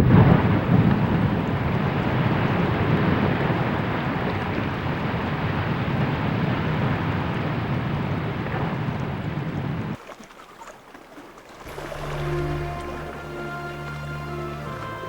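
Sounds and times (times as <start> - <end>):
wind noise on microphone: 0.0 - 10.0
boat engine rumble: 0.0 - 15.0
music with long held notes: 11.7 - 15.0.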